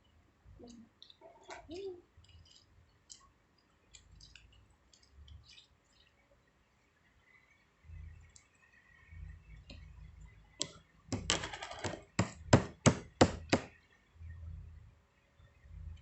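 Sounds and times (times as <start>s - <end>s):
sharp knocks on hard surface: 11.1s - 13.7s.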